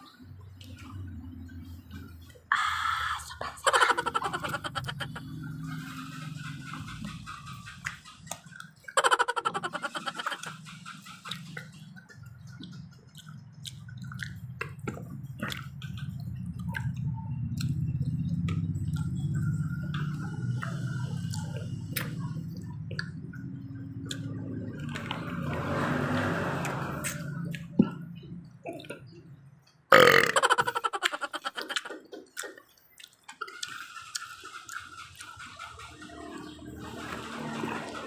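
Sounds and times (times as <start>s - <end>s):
low vehicle engine hum: 0.0s - 31.8s, 33.9s - 38.0s
chewing: 10.2s - 30.4s, 31.0s - 38.0s.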